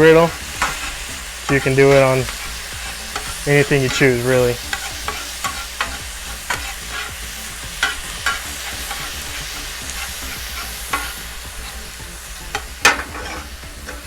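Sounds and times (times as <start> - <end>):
meat sizzling in a skillet: 0.0 - 14.0
utensil scraping a pan: 0.0 - 14.0.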